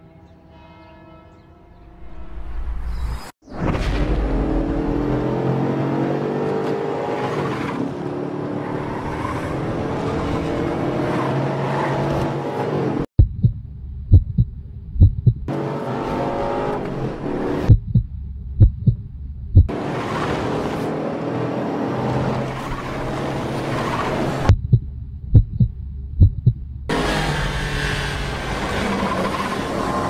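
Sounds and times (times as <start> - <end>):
car engine accelerating hard: 4.0 - 13.1, 26.9 - 30.0
deep thumps like a heartbeat: 13.2 - 15.5, 17.7 - 19.7, 24.5 - 26.9.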